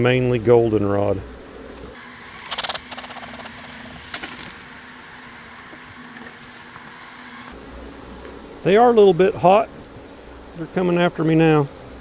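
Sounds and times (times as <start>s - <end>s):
bees buzzing: 0.0s - 12.0s
crackly rasps: 1.8s - 7.1s.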